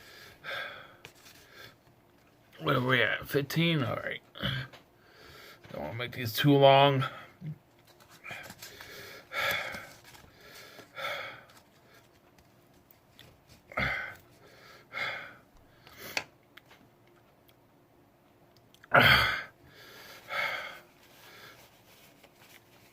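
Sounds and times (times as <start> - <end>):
man breathing hard: 0.0 - 1.9, 5.0 - 5.7, 8.1 - 12.2, 13.7 - 16.3, 19.0 - 21.8.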